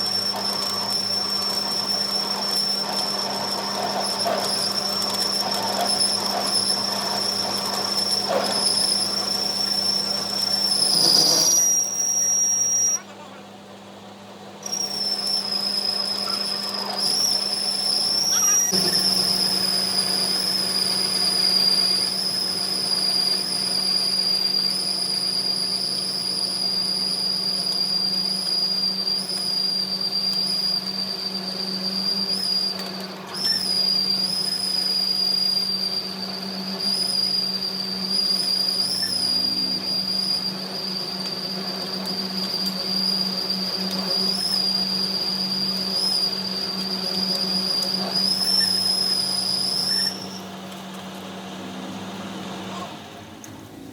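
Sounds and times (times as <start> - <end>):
machine whining over low hum: 0.0 - 13.3, 14.1 - 53.9.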